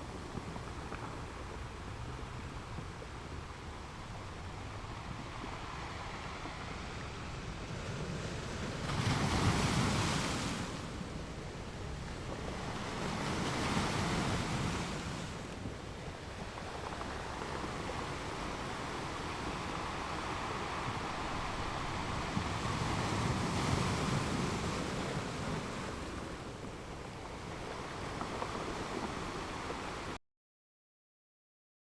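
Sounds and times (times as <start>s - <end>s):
ocean waves washing onto shore: 0.0s - 30.2s
breaking surf surges: 5.5s - 30.2s.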